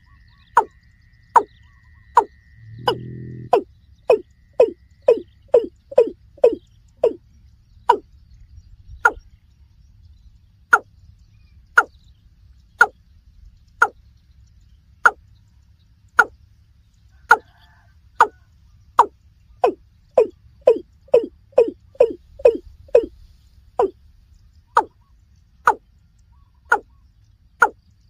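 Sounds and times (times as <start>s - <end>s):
bird calling sharp notes: 1.4s - 7.2s, 19.0s - 23.2s, 25.7s - 27.0s.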